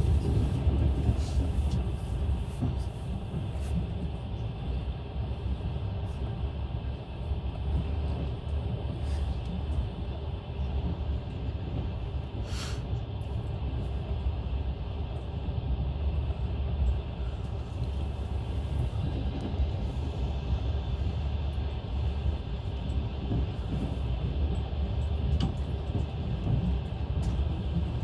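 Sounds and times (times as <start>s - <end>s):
train rumbling along track: 0.0s - 28.0s
brief hiss: 12.5s - 12.8s.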